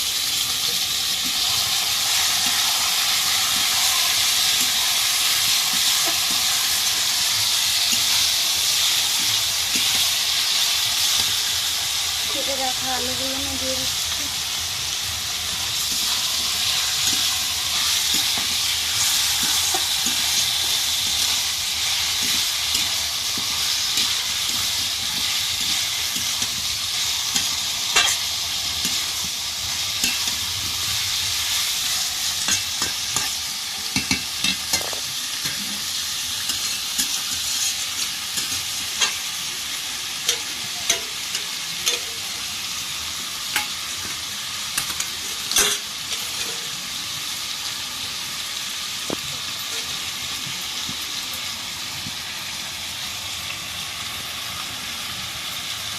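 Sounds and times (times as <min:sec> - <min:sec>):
chicken and potatoes sizzling in oil: 0:00.0 - 0:55.9
spatula scraping a pan: 0:15.7 - 0:33.4, 0:34.0 - 0:39.3.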